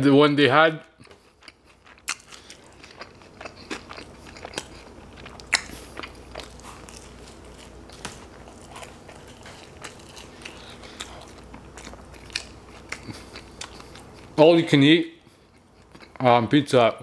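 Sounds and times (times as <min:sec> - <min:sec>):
biting crust: 0:01.0 - 0:14.4
wet chewing: 0:01.0 - 0:14.4, 0:15.2 - 0:16.2.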